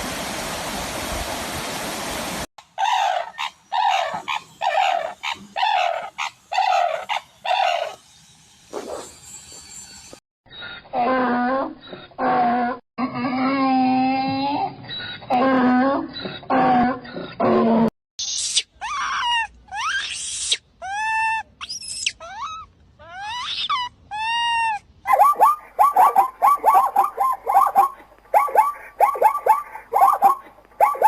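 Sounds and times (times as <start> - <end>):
higher rising and falling calls: 25.1 - 31.0.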